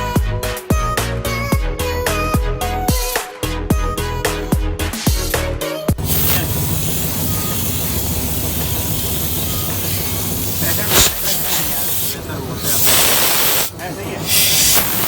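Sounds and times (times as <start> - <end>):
low machine hum: 6.0 - 10.9
high-pressure jet hissing: 6.0 - 15.0.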